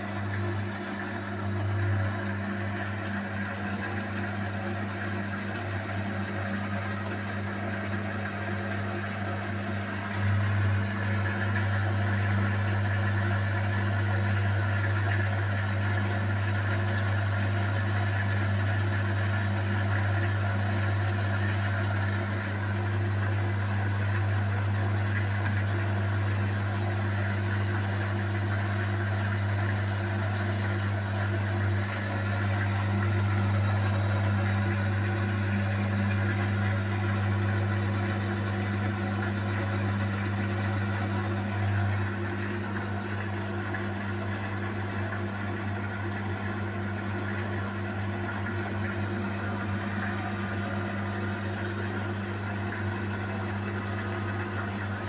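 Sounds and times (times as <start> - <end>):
washing machine spinning: 0.0 - 55.0.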